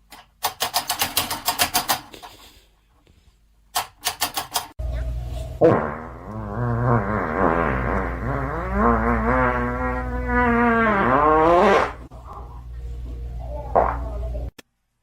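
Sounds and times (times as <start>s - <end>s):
steady low hum: 4.8s - 15.0s.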